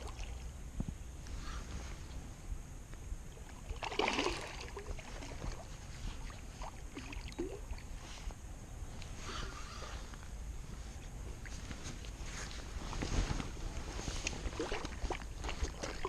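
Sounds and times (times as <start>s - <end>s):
water sloshing and splashing: 0.0s - 0.4s, 3.4s - 8.3s, 11.3s - 16.0s
steady low rumble: 0.0s - 3.8s, 4.5s - 16.0s.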